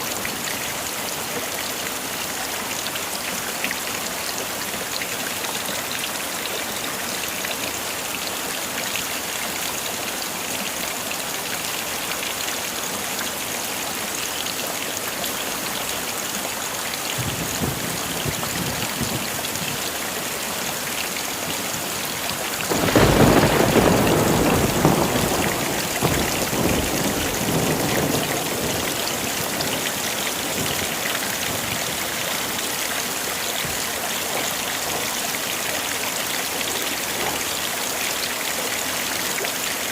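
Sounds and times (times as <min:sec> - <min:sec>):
heavy rain: 0:00.0 - 0:39.9
loud thunderclap: 0:17.2 - 0:19.8, 0:22.7 - 0:32.0
low thunder rumble: 0:17.2 - 0:19.9, 0:22.7 - 0:32.1.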